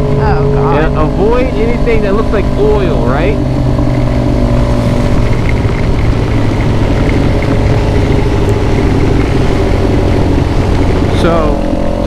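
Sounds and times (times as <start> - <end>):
motorcycle engine cruising: 0.0 - 12.0
wind and road noise: 0.0 - 12.0.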